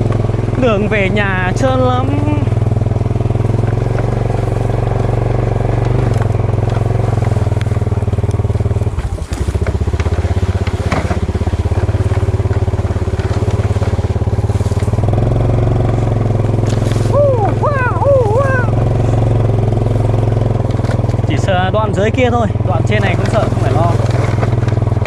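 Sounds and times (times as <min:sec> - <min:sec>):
motorcycle engine running: 0:00.0 - 0:25.0
crackling clicks: 0:05.7 - 0:15.0.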